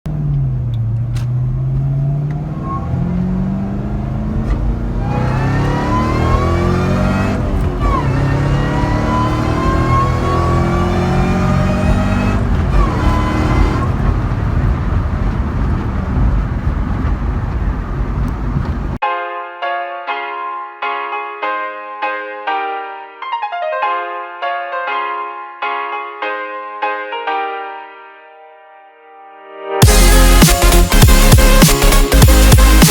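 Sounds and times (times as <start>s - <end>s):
car engine accelerating hard: 0.1s - 19.0s, 29.8s - 32.9s
high whine: 29.8s - 32.9s.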